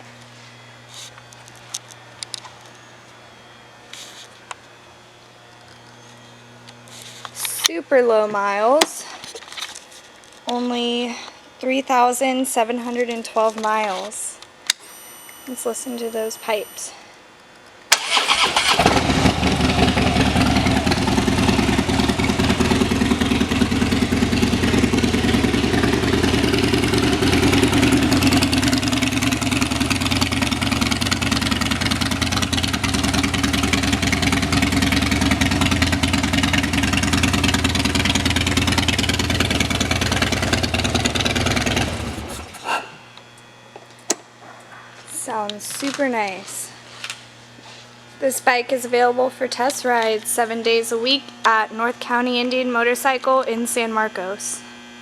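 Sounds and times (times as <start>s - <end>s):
motorcycle engine starting and idling: 17.9s - 42.6s.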